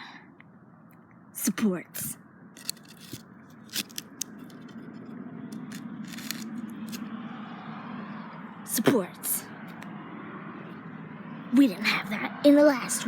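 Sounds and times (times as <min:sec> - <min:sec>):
sticks rustling and scraping: 0:02.6 - 0:07.1.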